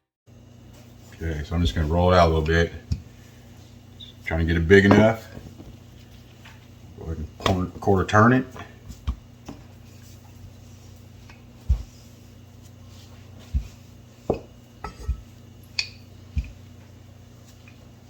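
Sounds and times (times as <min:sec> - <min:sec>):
steady low hum: 0:00.3 - 0:18.0
dough knocking on counter: 0:13.5 - 0:15.3.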